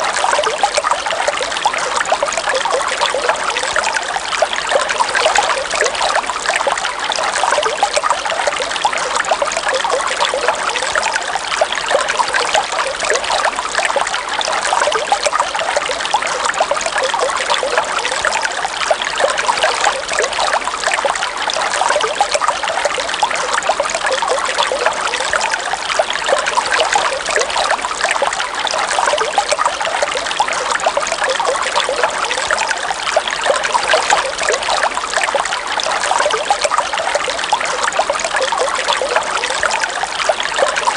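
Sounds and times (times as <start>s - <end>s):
river water running: 0.0s - 40.9s.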